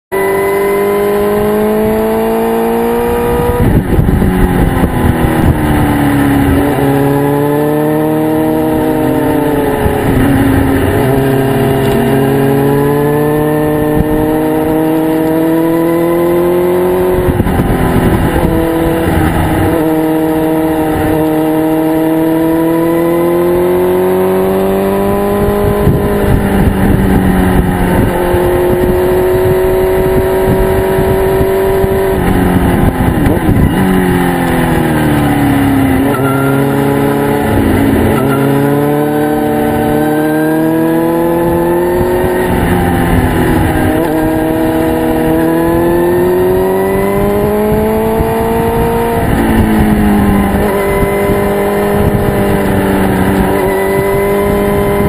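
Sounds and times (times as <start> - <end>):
motorcycle engine revving: 0.1 - 55.0.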